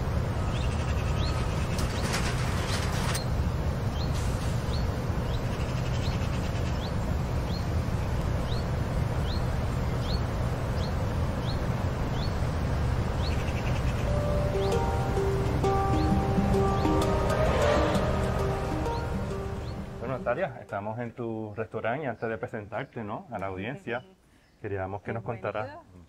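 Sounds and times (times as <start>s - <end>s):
steady low rumble: 12.6s - 20.7s
bird short rising chirp: 13.3s - 20.3s.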